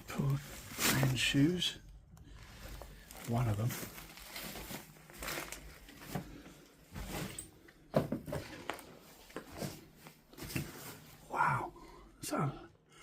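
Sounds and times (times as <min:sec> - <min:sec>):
scuffs and rustles in debris: 0:00.0 - 0:01.7, 0:02.3 - 0:07.6.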